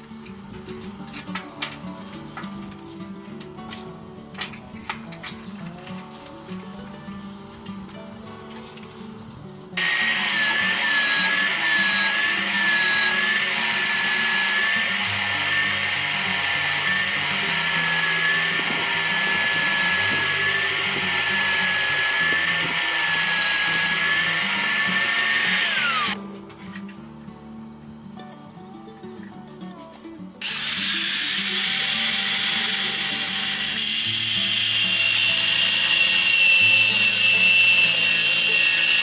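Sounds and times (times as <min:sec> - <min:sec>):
high-pitched electric power tool: 0:09.8 - 0:26.2, 0:30.4 - 0:39.0.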